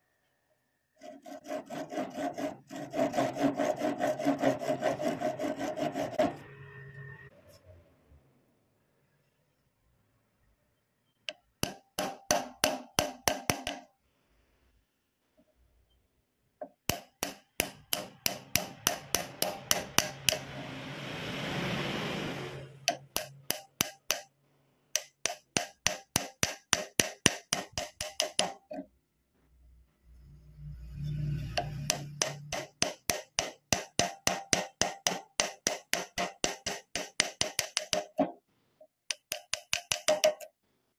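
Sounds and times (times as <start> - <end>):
rapid sharp knocks: 11.6 - 13.9, 16.9 - 20.5, 25.0 - 28.6, 31.8 - 38.3, 39.1 - 40.5
hiss: 20.6 - 22.8.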